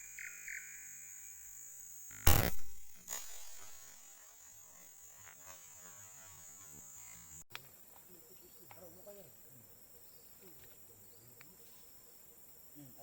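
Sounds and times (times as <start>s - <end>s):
high-pitched hiss: 0.0s - 9.7s
loud gunshot: 2.3s - 3.8s.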